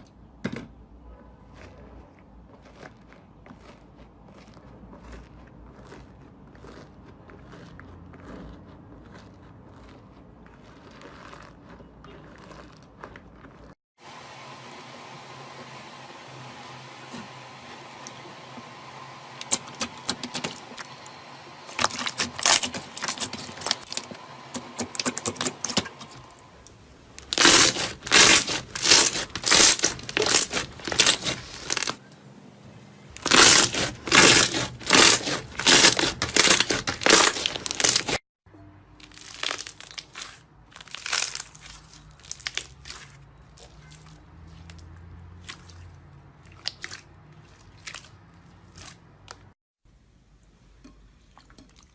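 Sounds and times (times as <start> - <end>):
slime crackling and popping: 27.2 - 32.0, 33.2 - 38.2, 39.0 - 44.8.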